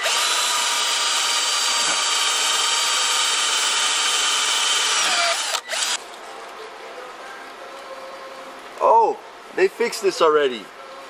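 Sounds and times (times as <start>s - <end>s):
power tool whining: 0.0s - 6.0s.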